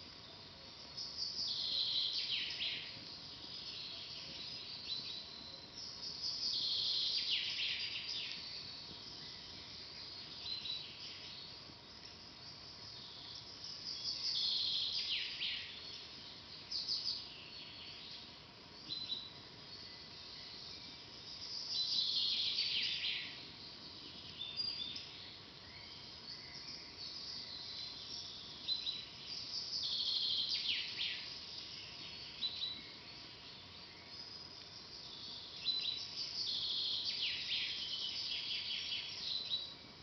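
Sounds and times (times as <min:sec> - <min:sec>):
faint steady hiss: 0:00.0 - 0:40.0
songbirds singing: 0:00.0 - 0:40.0.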